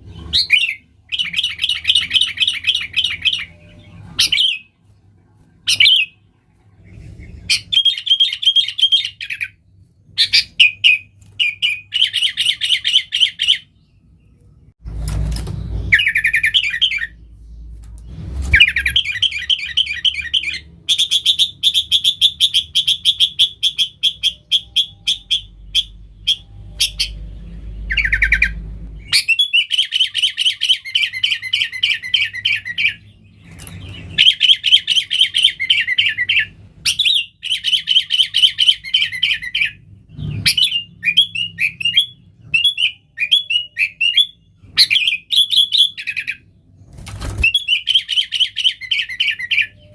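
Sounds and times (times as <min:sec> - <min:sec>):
bulbul chattering song: 0:18.6 - 0:33.2.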